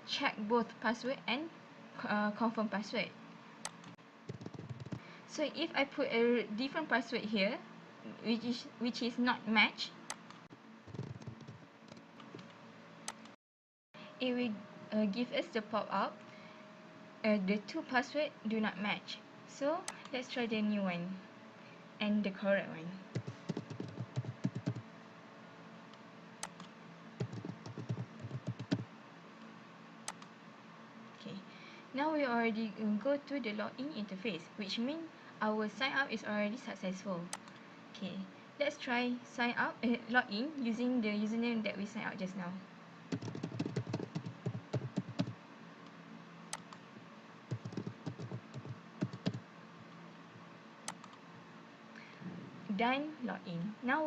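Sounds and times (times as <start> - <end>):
typing on computer keyboard: 3.7 - 5.0, 10.1 - 12.5, 23.2 - 24.8, 26.4 - 28.9, 43.1 - 45.4, 47.5 - 49.4.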